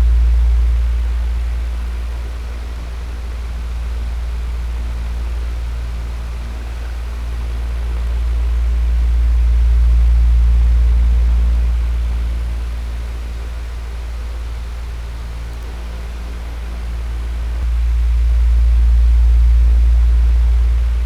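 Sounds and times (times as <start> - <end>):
electric fan running: 0.0 - 21.0.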